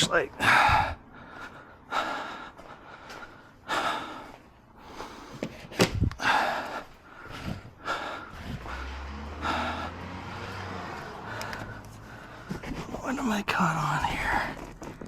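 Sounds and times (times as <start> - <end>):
man breathing hard and huffing: 0.3 - 12.9.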